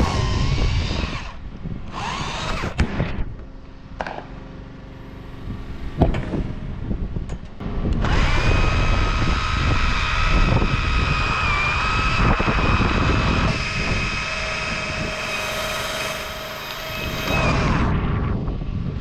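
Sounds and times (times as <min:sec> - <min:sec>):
chainsaw engine high revs: 0:08.0 - 0:17.9.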